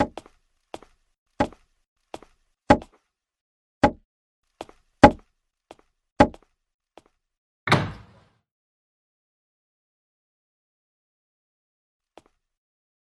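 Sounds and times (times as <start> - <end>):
footsteps walking: 0.0 - 3.0.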